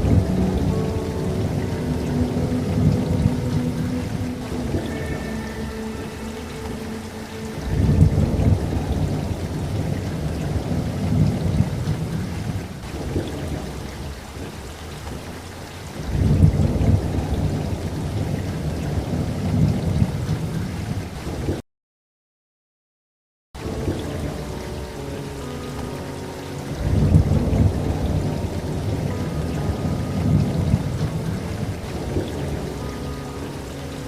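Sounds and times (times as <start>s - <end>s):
steady rain: 0.0s - 21.6s, 23.6s - 34.0s
thunder rolling: 16.0s - 21.0s.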